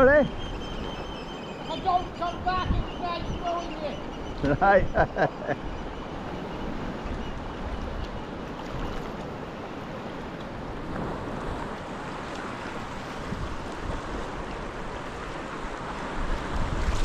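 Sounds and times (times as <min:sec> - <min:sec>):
wind buffeting microphone: 0:00.0 - 0:05.1, 0:10.7 - 0:17.0
waves sloshing around kayak: 0:00.0 - 0:17.0.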